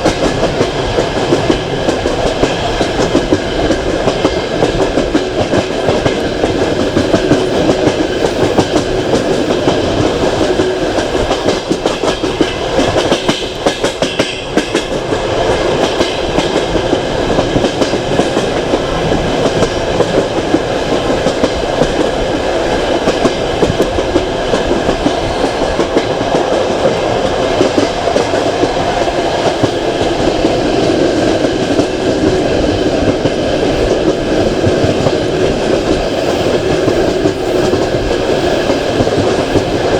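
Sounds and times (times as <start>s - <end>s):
train carriages rumbling: 0.0s - 39.9s.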